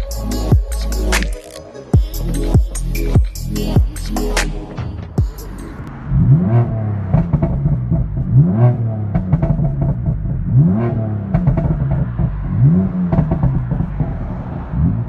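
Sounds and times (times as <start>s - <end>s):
car engine revving: 2.2s - 15.0s
exhaust cracks and pops: 13.1s - 14.2s.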